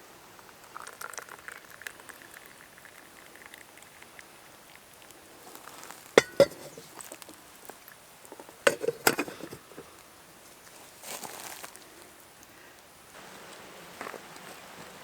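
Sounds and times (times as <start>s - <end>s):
soft rustle: 8.4s - 12.1s.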